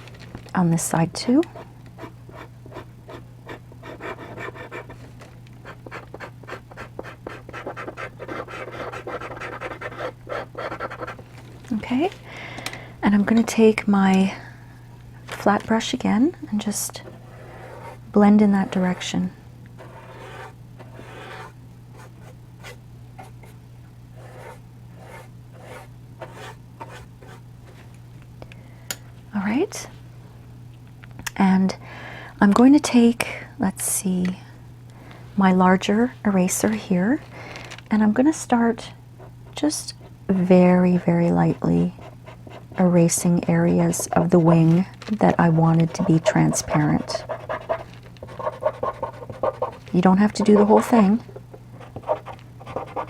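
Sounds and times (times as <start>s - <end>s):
steady low hum: 0.0s - 53.0s
eraser scrubbing on paper: 19.8s - 23.5s, 24.2s - 27.4s, 45.8s - 51.2s.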